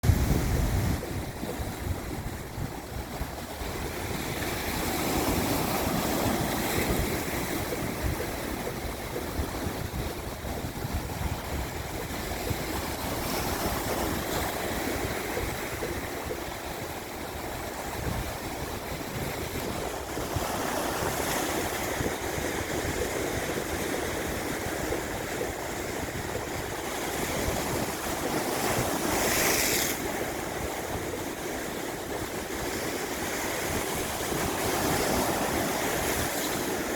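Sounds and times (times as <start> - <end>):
waves breaking on rocky shore: 0.0 - 36.9.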